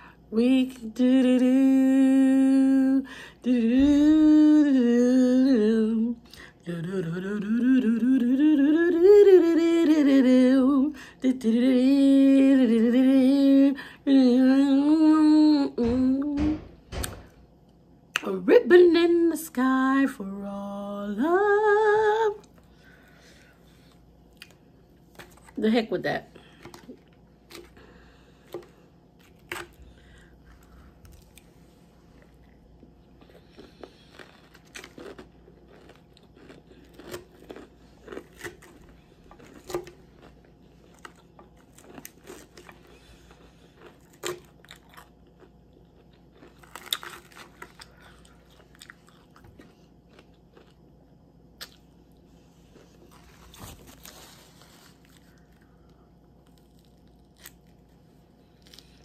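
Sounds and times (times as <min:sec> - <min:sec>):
crunching and chewing salad: 0:22.3 - 0:25.6, 0:26.4 - 0:59.0.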